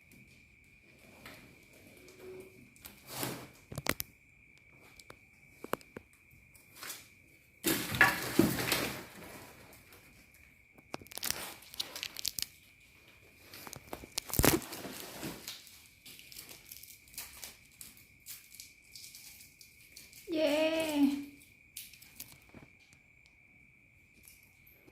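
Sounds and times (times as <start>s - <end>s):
packaging wrap ripping: 11.0s - 12.5s, 13.6s - 15.6s.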